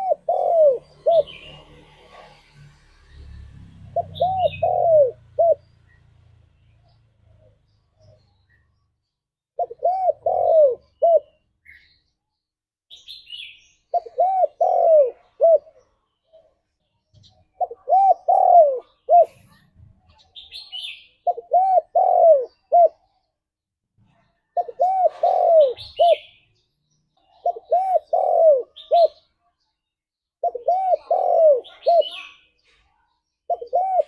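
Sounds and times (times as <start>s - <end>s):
dove cooing: 0.0s - 2.5s, 3.9s - 5.7s, 9.6s - 11.4s, 13.9s - 15.9s, 17.5s - 19.6s, 21.2s - 23.2s, 24.6s - 26.4s, 27.3s - 29.3s, 30.4s - 32.4s, 33.5s - 34.0s
faint high bird chirps: 3.0s - 23.4s, 24.0s - 34.0s.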